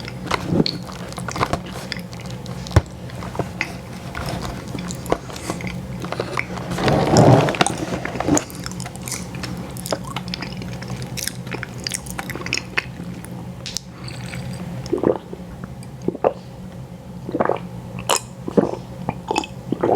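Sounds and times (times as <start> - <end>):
biting and chewing: 0.0 - 14.9
low steady hum: 0.0 - 19.9.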